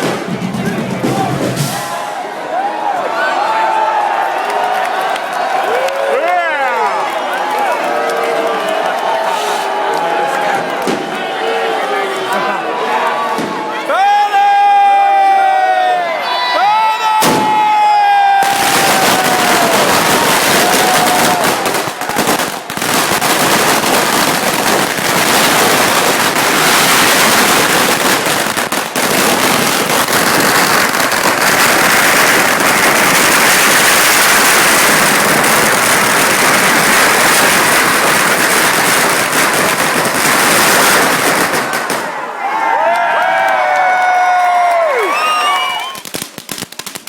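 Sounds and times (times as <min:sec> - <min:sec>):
firecrackers rattling and banging: 0:18.4 - 0:42.1, 0:46.0 - 0:47.0.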